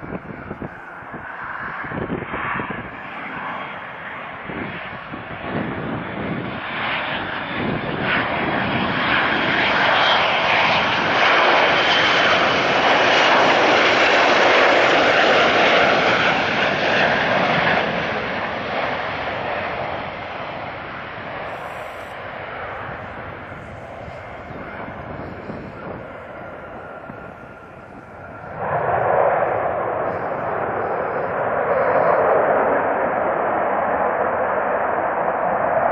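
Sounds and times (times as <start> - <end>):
jet airliner flying past: 0.0 - 35.9
high engine whine: 7.6 - 35.9.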